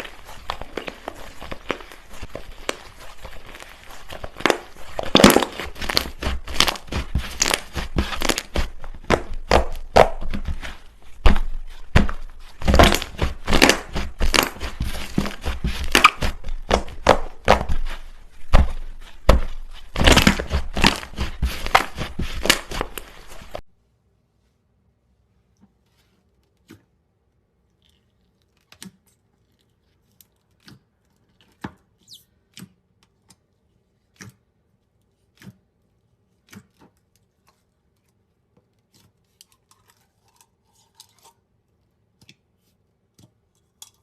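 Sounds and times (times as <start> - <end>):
slime squelching and popping: 0.0 - 23.6.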